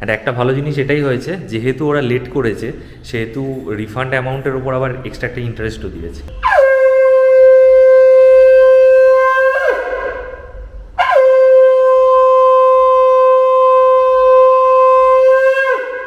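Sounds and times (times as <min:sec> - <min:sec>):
conch shell blasts: 0:06.3 - 0:16.0.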